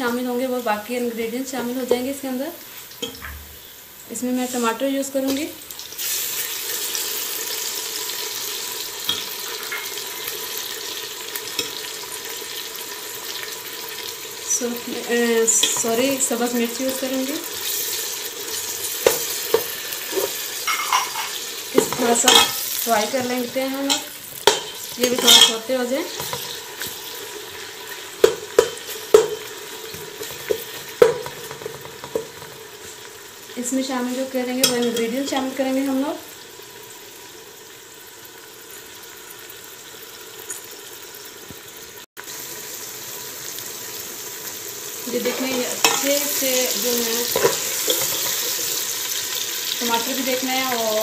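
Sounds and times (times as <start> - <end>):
onions sizzling in hot oil: 0.0 - 51.0
metal spoon clanking against pot: 19.0 - 22.6, 23.2 - 25.6, 28.2 - 29.5, 34.6 - 35.1, 47.3 - 48.5.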